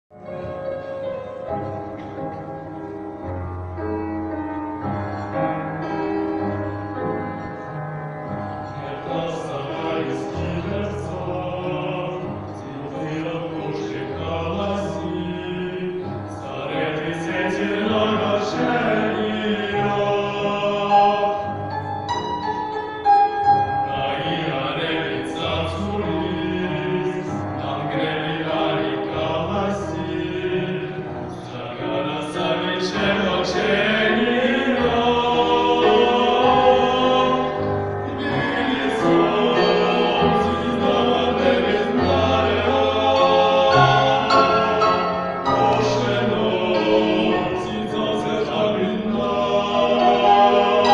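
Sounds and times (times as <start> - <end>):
choir singing sustained notes: 8.6 - 22.3, 23.8 - 50.9.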